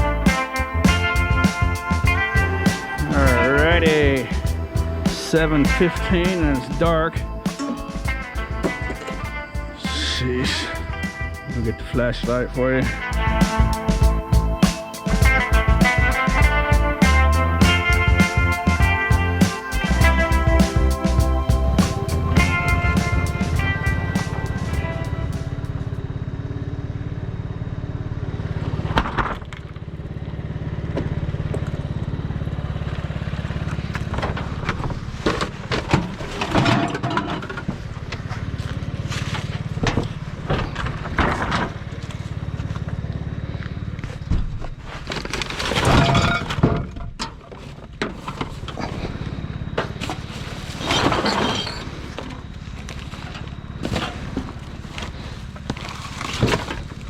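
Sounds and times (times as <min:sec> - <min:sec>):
steady low hum: 0:00.0 - 0:57.0
junk clattering in a dumpster: 0:33.6 - 0:43.1, 0:44.0 - 0:57.0.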